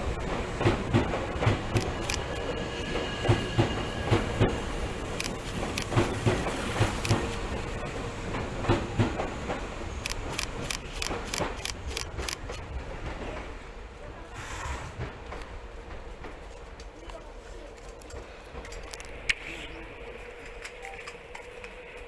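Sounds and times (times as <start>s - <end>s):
train wheels clacking over rail joints: 0.0s - 19.5s
sharp clicks: 1.7s - 2.3s, 10.0s - 12.6s.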